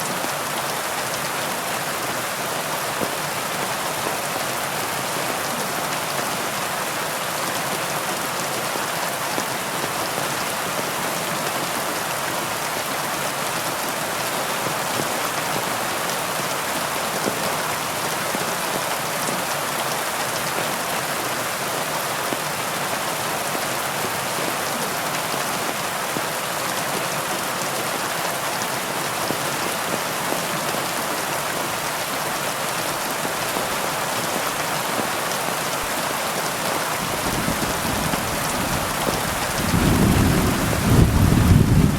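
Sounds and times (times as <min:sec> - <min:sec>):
heavy rain on leaves: 0:00.0 - 0:41.9.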